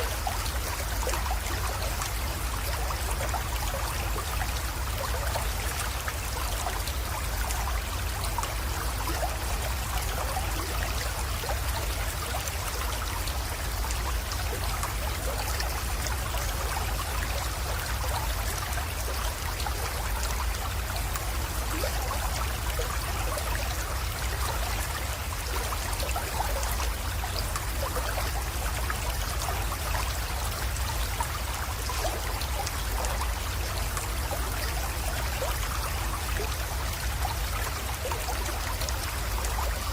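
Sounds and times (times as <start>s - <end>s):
creek trickling over stones: 0.0s - 39.9s.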